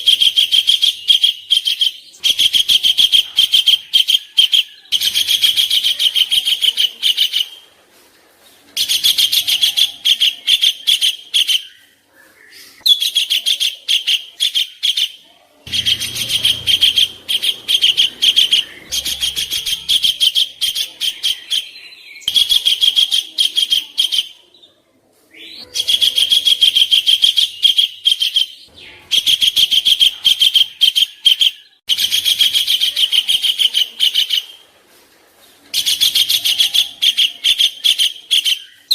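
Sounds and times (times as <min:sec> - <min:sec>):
songbird harsh rapid trills: 0:15.7 - 0:21.6.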